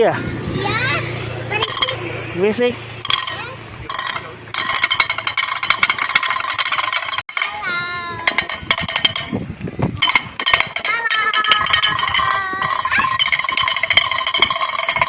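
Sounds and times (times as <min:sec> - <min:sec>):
child's high voice: 0:00.6 - 0:01.8, 0:07.4 - 0:08.5, 0:10.8 - 0:13.4
tin toy rattling: 0:01.5 - 0:02.0, 0:03.0 - 0:09.4, 0:10.0 - 0:15.0.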